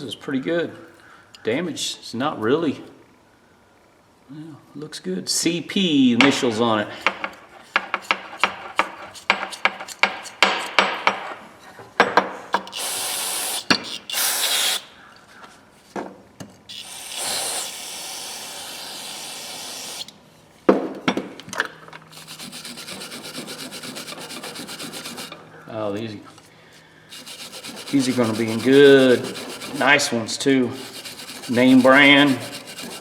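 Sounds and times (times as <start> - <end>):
aerosol spray hissing: 12.7 - 14.8, 16.7 - 20.1, 27.1 - 30.0
brush scrubbing: 22.1 - 25.4, 27.1 - 33.0.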